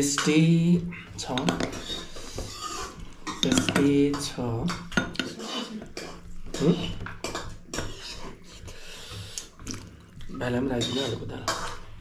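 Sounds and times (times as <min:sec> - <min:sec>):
spoons clinking against plates: 0:01.2 - 0:08.4, 0:10.6 - 0:11.9.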